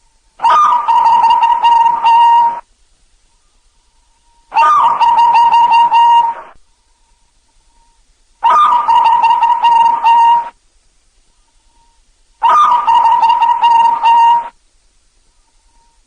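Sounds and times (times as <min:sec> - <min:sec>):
dove cooing: 0:00.4 - 0:02.6, 0:04.5 - 0:06.6, 0:08.4 - 0:10.6, 0:11.7 - 0:14.6.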